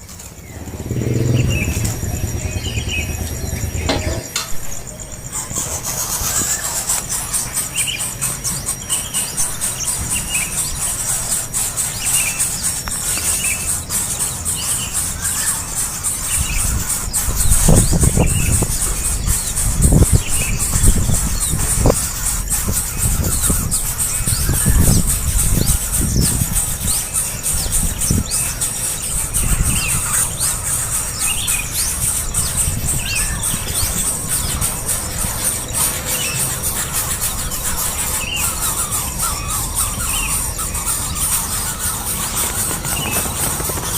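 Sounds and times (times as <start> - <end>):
small birds chirping: 0.0 - 43.9
low rumble: 0.2 - 5.2.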